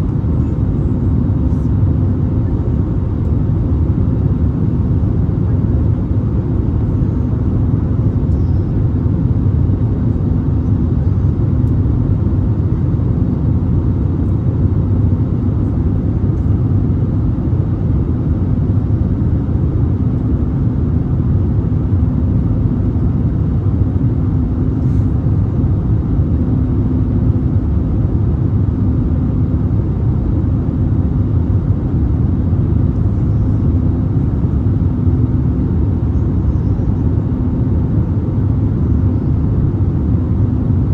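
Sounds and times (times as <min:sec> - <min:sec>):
airliner cabin engine rumble: 0:00.0 - 0:40.9
faint hum: 0:00.0 - 0:40.9.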